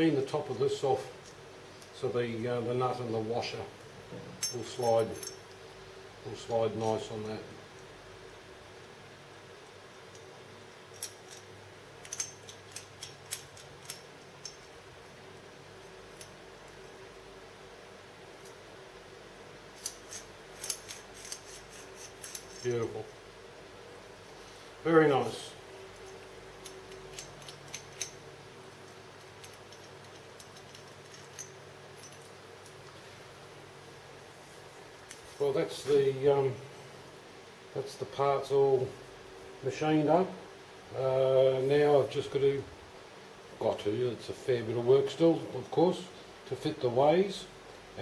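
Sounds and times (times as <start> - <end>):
faint steady hum: 0.0 - 48.0
metallic clicks of nut and washer: 9.6 - 14.8, 19.8 - 22.7, 26.0 - 33.0.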